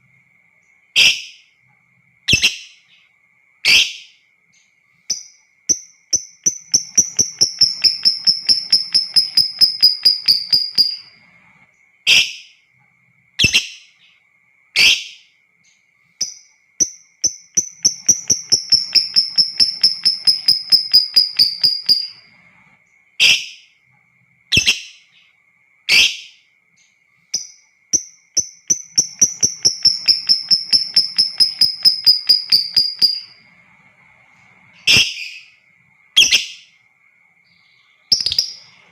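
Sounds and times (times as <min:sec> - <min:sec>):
lovebird rattling trills: 0:05.1 - 0:11.2, 0:16.2 - 0:22.3, 0:27.4 - 0:33.5, 0:38.1 - 0:38.8
lovebird sharp calls: 0:06.1 - 0:11.2, 0:17.2 - 0:22.3, 0:24.5 - 0:25.0, 0:25.9 - 0:26.4, 0:28.4 - 0:33.4, 0:34.8 - 0:35.6, 0:38.1 - 0:38.9.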